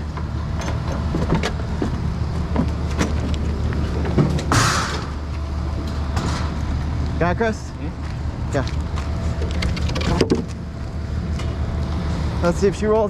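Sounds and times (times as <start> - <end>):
clanks and knocks: 0.0 - 6.8, 9.0 - 10.6
vehicle engine idling: 0.0 - 13.0.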